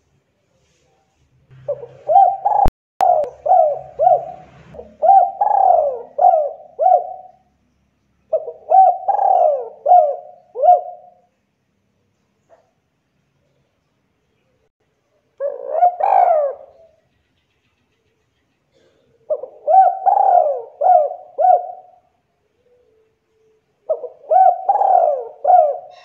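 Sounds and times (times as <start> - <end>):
dove cooing: 1.6 - 7.5, 8.3 - 11.2, 15.4 - 17.0, 18.7 - 23.0, 23.8 - 26.0.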